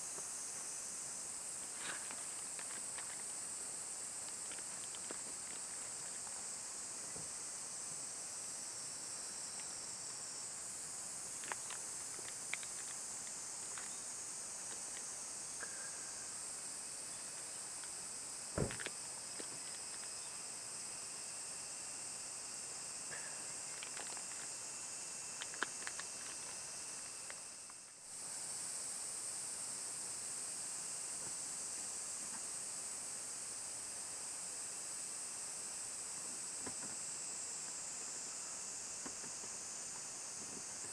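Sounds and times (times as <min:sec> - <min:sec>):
steady high hiss: 0:00.0 - 0:40.9.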